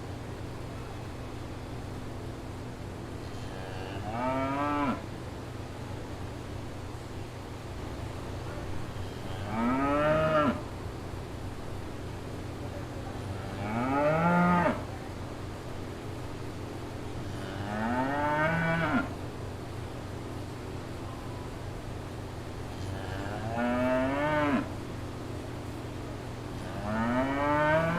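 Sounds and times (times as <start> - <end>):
cow mooing: 9.3 - 10.6, 23.0 - 24.7, 26.7 - 27.9.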